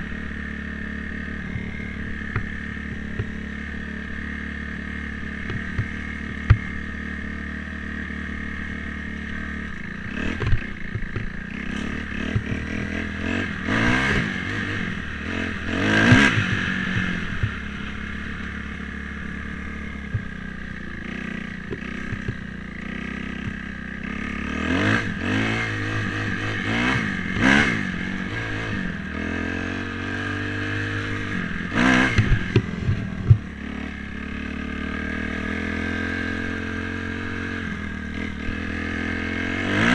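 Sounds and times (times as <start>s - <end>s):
dirt bike engine revving: 0.0s - 39.9s
clatters and knocks: 10.4s - 11.4s.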